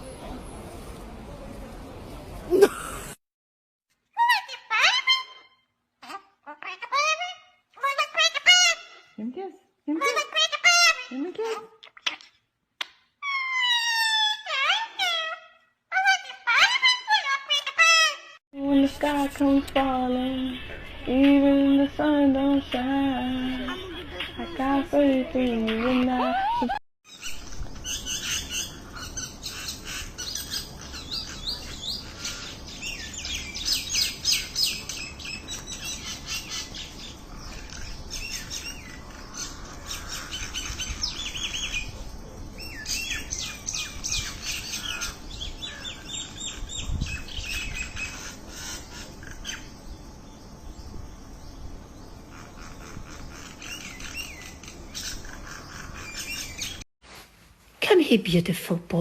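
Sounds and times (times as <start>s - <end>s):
small birds chirping: 27.1s - 56.9s.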